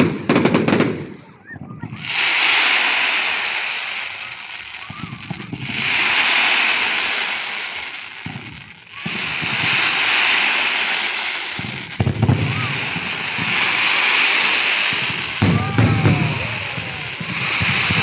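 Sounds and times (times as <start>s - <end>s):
fireworks hissing: 1.7s - 18.0s
firework thumps: 8.2s - 18.0s.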